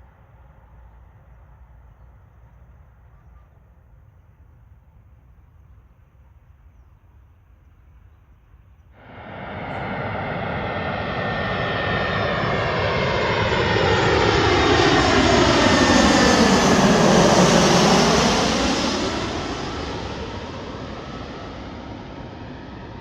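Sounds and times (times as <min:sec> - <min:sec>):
jet airliner engine noise: 0:08.9 - 0:23.0.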